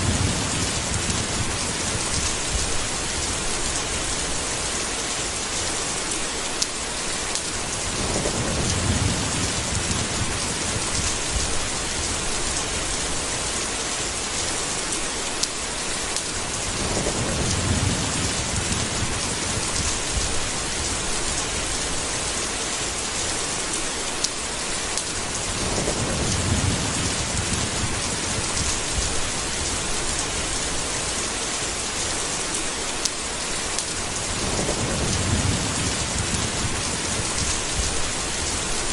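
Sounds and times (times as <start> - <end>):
rolling thunder: 0.0 - 4.7, 7.6 - 13.4, 16.5 - 22.2, 25.2 - 31.1, 33.9 - 38.9
heavy rain hissing: 0.0 - 38.9.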